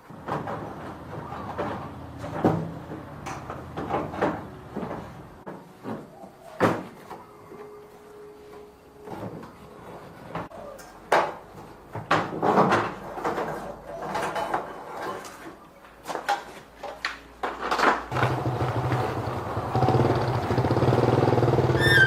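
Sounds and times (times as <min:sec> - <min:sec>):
knocks and clatter of parts: 0:00.0 - 0:07.2, 0:10.3 - 0:19.3.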